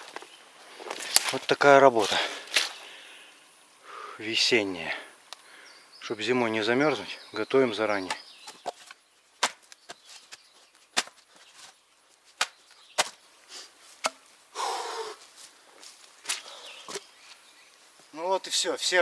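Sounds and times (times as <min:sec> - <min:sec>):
maul cracking wood rounds: 0:00.9 - 0:02.8, 0:08.0 - 0:11.7, 0:12.4 - 0:13.2, 0:14.0 - 0:14.3
scraping rustle: 0:07.9 - 0:14.1.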